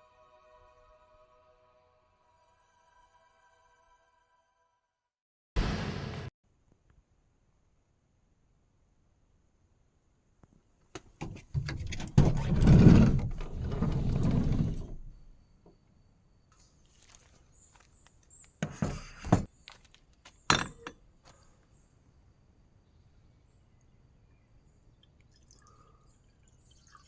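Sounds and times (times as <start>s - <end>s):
handling knocks and clatter: 11.0s - 15.3s, 20.5s - 21.0s.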